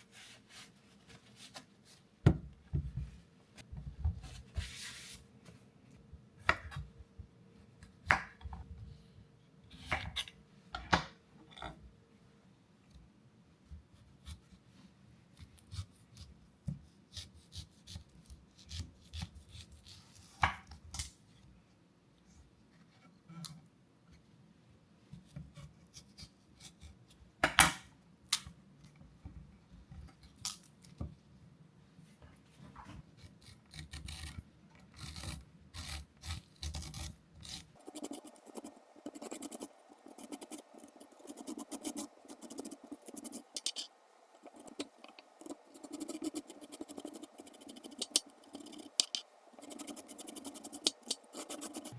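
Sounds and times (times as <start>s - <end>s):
dense steady scratching: 35.0s - 51.9s
rubbing and scraping: 35.0s - 51.9s.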